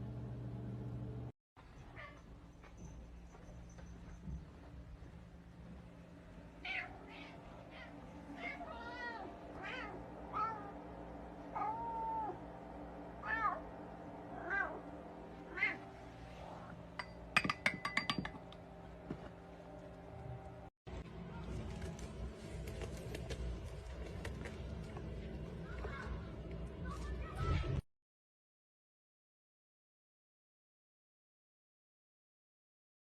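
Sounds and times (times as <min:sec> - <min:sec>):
cat meowing: 0:06.6 - 0:10.8, 0:11.5 - 0:12.4, 0:13.2 - 0:13.6, 0:14.3 - 0:14.8, 0:15.5 - 0:15.8.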